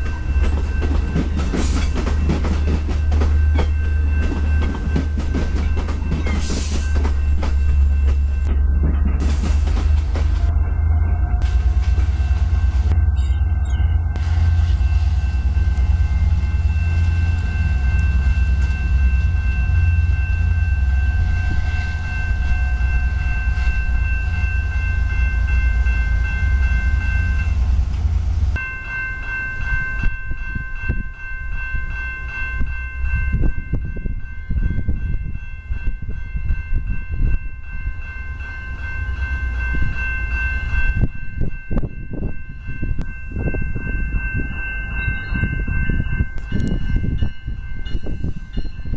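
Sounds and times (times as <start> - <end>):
train rumble: 0.0 - 48.9
steady high-pitched tones: 10.2 - 27.8.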